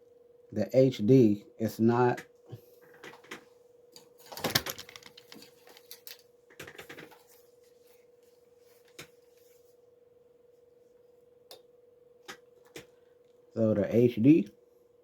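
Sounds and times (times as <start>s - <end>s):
faint steady hum: 0.0s - 15.0s
handling clicks and rattles: 4.2s - 7.3s.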